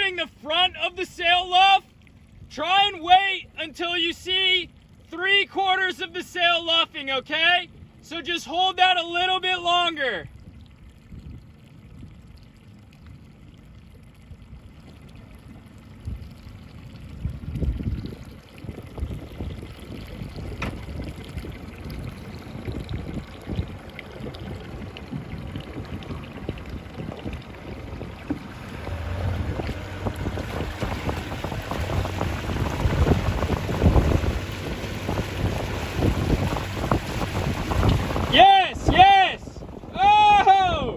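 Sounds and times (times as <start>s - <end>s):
water rushing past boat: 0.0s - 40.9s
wind buffeting microphone: 10.3s - 12.2s, 14.4s - 40.9s.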